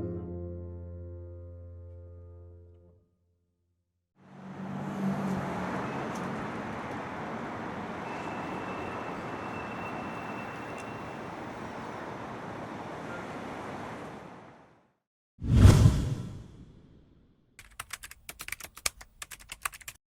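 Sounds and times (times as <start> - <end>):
passing vehicles: 4.2 - 14.8.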